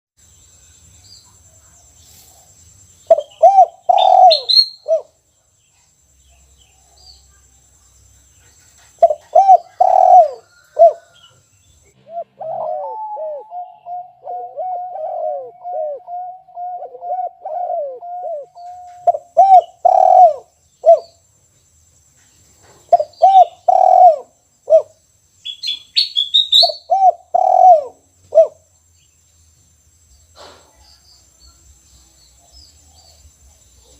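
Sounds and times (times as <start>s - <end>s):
dove cooing: 3.1s - 5.1s, 8.9s - 11.2s, 12.0s - 21.1s, 22.9s - 24.9s, 26.5s - 28.6s.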